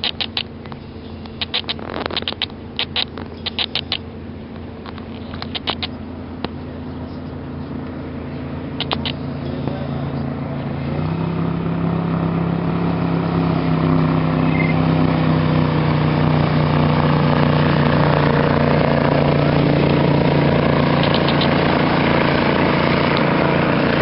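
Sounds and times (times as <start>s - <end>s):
sharp clicks: 0.0s - 6.6s, 8.8s - 9.2s, 21.0s - 21.6s
motorboat engine humming: 0.0s - 24.0s.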